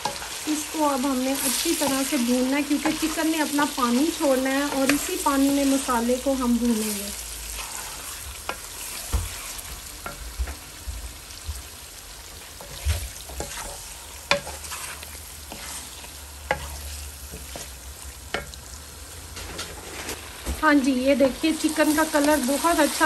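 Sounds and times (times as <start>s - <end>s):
spatula knocking and scraping pan: 0.0s - 0.3s, 1.4s - 5.4s, 7.6s - 10.7s, 12.5s - 18.6s
chicken sizzling in a pan: 0.0s - 23.0s.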